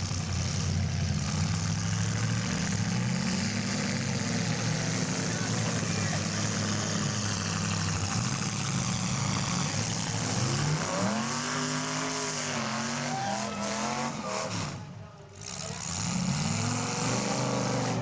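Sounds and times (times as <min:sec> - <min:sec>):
car engines running: 0:00.0 - 0:18.0
engine revving up and down: 0:00.0 - 0:18.0.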